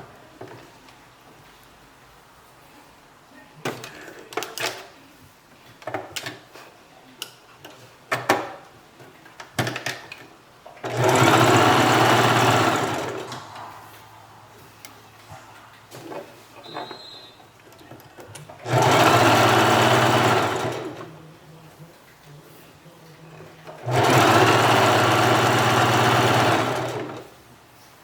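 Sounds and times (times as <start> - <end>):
sewing machine stitching: 10.8 - 13.4, 18.4 - 21.1, 23.6 - 27.3.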